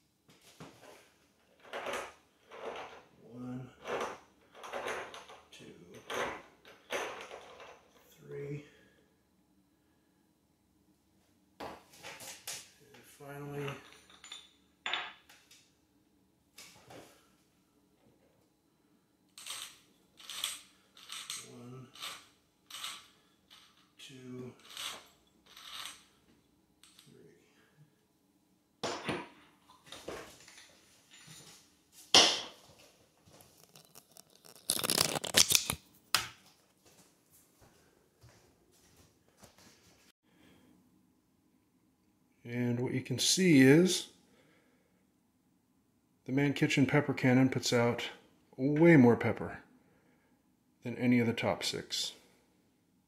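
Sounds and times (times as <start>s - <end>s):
pepper mill scraping: 33.4s - 35.8s.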